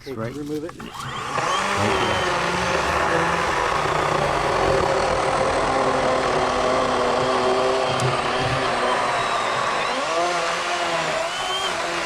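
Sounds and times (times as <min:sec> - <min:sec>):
electric chainsaw whine: 0:00.9 - 0:12.0.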